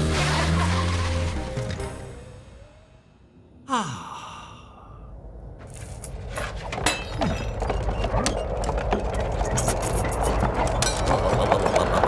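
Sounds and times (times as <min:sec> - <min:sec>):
crashing and clattering: 0:06.4 - 0:12.0.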